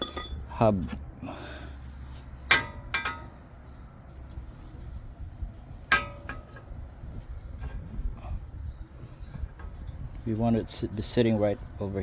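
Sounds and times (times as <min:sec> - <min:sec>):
metal cups clinking: 0:00.0 - 0:00.4.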